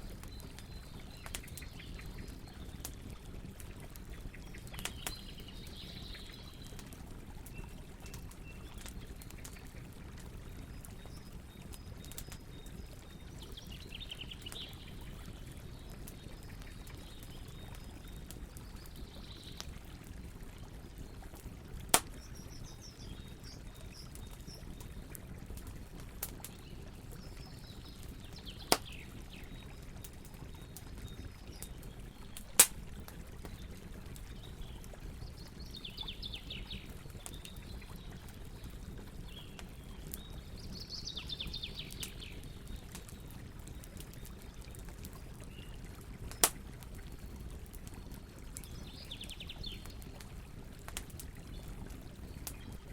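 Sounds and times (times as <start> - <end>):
campfire hissing: 21.6 - 22.8, 32.3 - 33.0
burning wood popping: 21.8 - 22.5, 24.3 - 35.4, 42.8 - 47.7.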